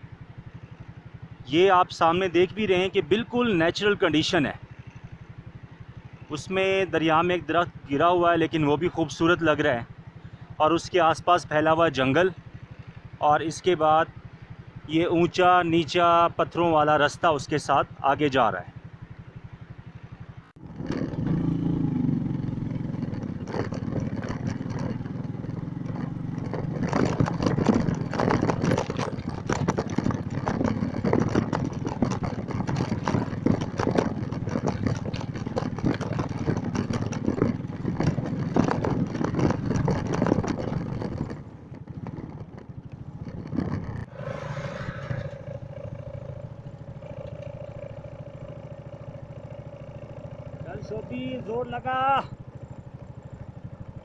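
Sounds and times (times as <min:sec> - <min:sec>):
motorcycle engine under load: 0:00.0 - 0:54.0
clattering and rattling: 0:22.5 - 0:44.1.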